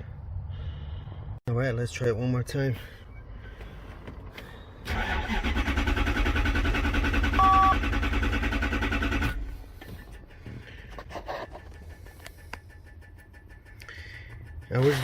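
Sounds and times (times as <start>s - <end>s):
starter cranking car engine: 4.0s - 15.0s
short two-tone beep: 7.4s - 7.8s.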